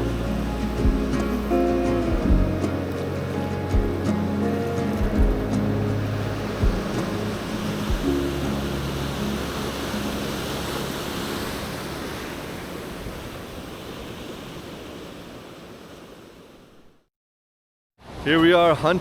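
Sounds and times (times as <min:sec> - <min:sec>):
held low musical notes: 0:00.0 - 0:11.7
ocean surf washing on beach: 0:00.0 - 0:16.8.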